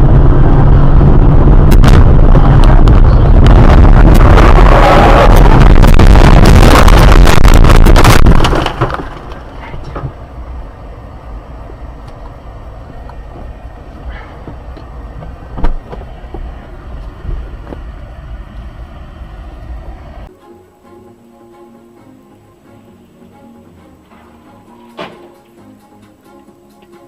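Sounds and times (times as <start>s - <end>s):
loud dense noise: 0.0s - 20.3s
vehicle road noise: 0.0s - 20.4s.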